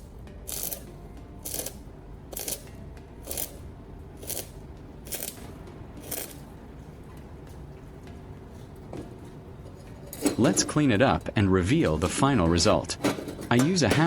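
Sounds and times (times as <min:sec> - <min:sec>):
hand tool scraping steel: 0:00.0 - 0:03.6, 0:04.2 - 0:06.5, 0:08.5 - 0:12.2.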